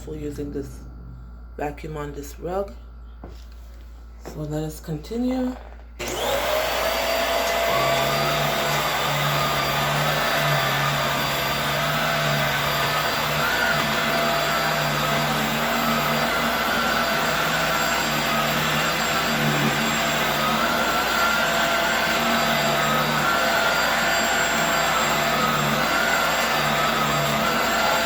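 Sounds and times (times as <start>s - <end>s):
upright vacuum cleaner running: 6.0s - 28.0s.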